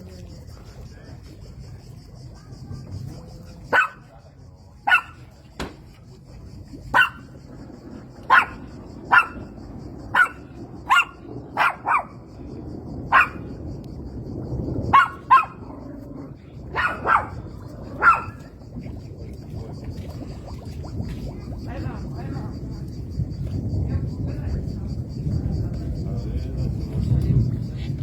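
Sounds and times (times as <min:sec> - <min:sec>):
low background rumble: 0:00.0 - 0:28.0
dog barking: 0:03.7 - 0:04.1, 0:04.8 - 0:05.3, 0:06.9 - 0:07.3, 0:08.3 - 0:09.5, 0:10.1 - 0:12.2, 0:13.1 - 0:13.5, 0:14.9 - 0:15.7, 0:16.7 - 0:18.4.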